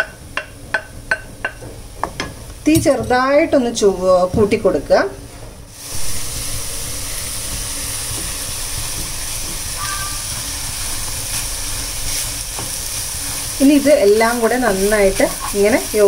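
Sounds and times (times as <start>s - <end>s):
eggs sizzling in a pan: 5.7s - 16.0s.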